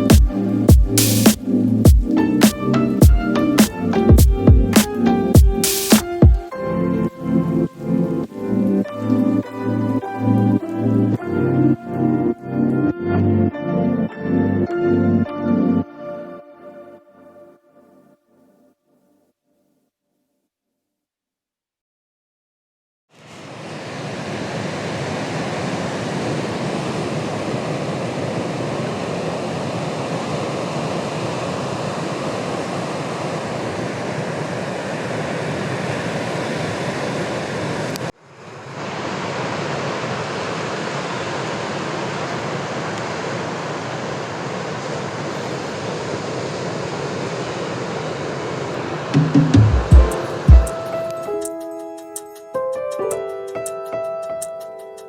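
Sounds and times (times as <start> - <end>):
ocean surf breaking: 23.2 - 51.4.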